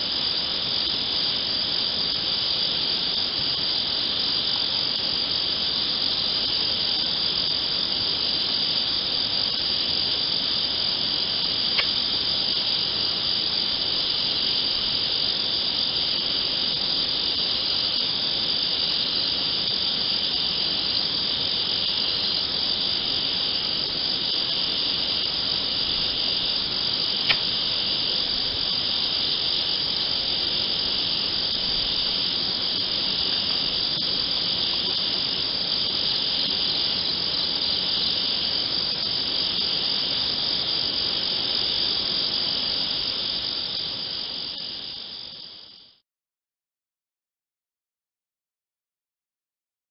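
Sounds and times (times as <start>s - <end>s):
crickets chirring: 0.0s - 46.0s
sharp clicks: 27.2s - 27.5s.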